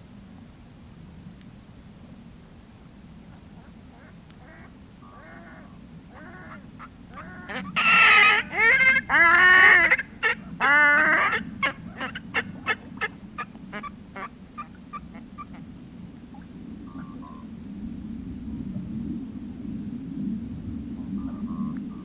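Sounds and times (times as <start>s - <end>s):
swans honking calls: 6.2s - 13.1s.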